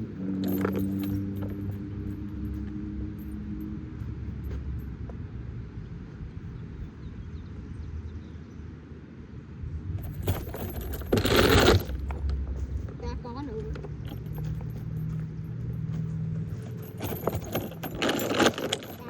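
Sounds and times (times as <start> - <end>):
metallic clattering jangle: 0.0 - 5.0, 10.0 - 19.0
steady low rumble: 9.4 - 18.0.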